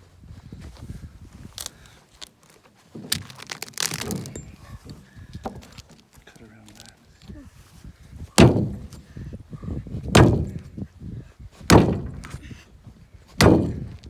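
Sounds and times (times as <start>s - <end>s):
heavy blows on wood: 8.1s - 9.3s, 9.9s - 10.8s, 11.6s - 12.5s, 13.3s - 14.0s.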